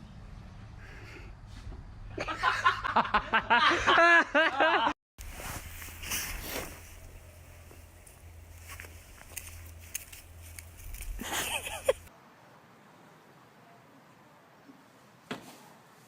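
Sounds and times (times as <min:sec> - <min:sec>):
person laughing hard: 0:02.2 - 0:05.0, 0:11.2 - 0:12.1.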